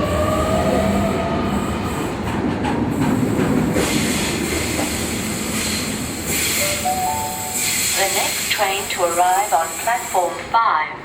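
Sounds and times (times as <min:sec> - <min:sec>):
train rumble with wheel clicks: 0:00.0 - 0:10.6
hiss: 0:03.2 - 0:06.8.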